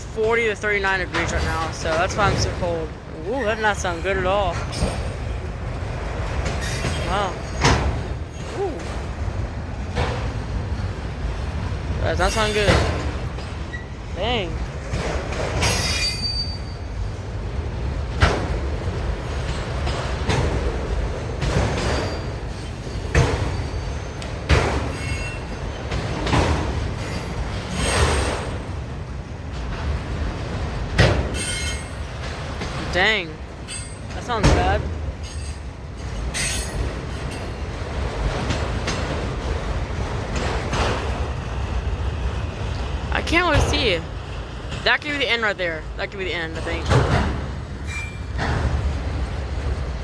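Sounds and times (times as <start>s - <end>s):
wheels screeching: 0.0s - 17.4s, 30.9s - 34.4s, 46.6s - 50.0s
train rumbling past: 0.0s - 50.0s
high wheel squeal: 6.4s - 9.8s, 15.6s - 17.1s, 31.3s - 32.1s, 35.2s - 37.6s, 47.8s - 48.4s.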